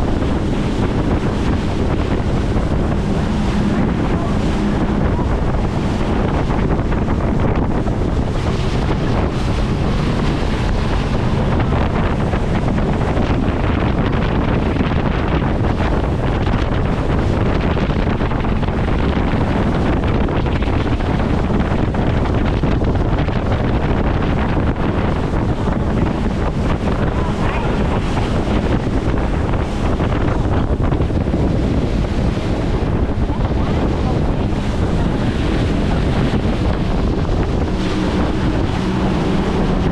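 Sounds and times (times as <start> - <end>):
boat motor: 0.0 - 39.9
water rushing: 0.0 - 39.9
wind buffeting microphone: 0.0 - 39.9.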